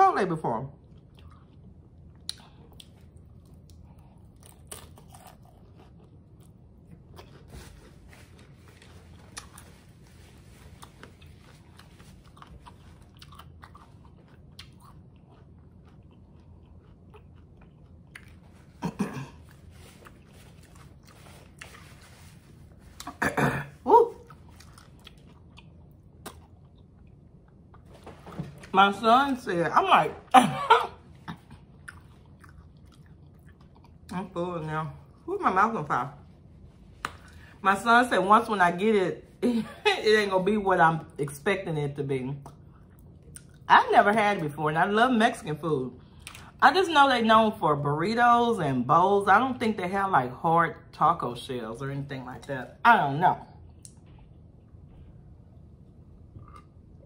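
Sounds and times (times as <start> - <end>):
crunchy taco chewing: 0.8 - 23.4, 24.2 - 27.9, 31.4 - 34.1.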